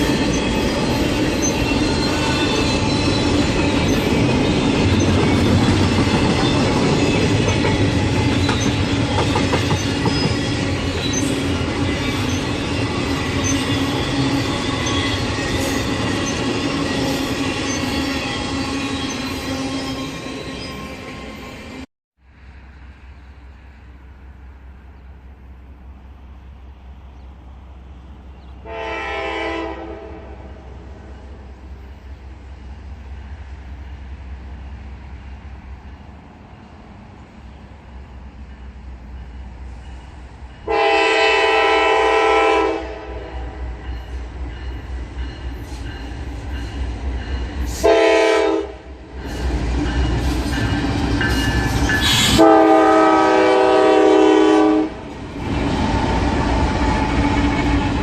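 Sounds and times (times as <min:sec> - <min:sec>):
train wheel clatter: 0:00.0 - 0:19.3, 0:49.2 - 0:52.4
train passing rumble: 0:00.0 - 0:58.0
train horn blasts: 0:28.6 - 0:31.3, 0:40.6 - 0:43.7, 0:47.7 - 0:49.1, 0:52.1 - 0:55.1.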